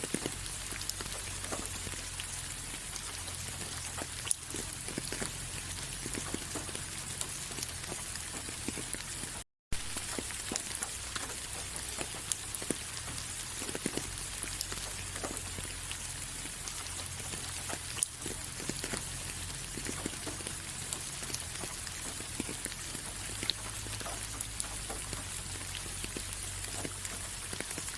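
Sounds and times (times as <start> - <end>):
rain falling: 0.0 - 27.9
raindrops ticking: 0.0 - 27.9.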